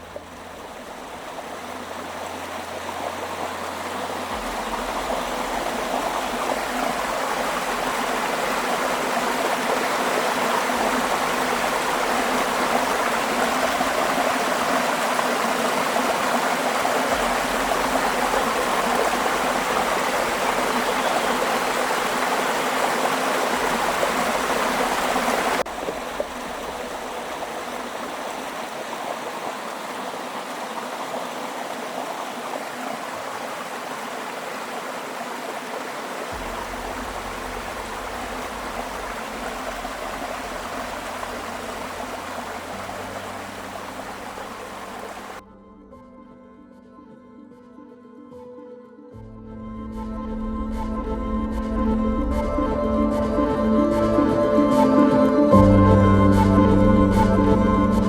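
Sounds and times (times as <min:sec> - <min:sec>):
rushing river water: 0:00.0 - 0:45.4.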